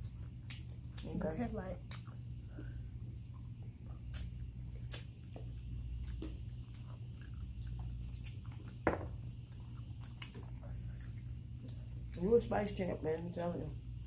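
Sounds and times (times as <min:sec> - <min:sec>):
people chewing and crunching food: 0:00.0 - 0:14.0.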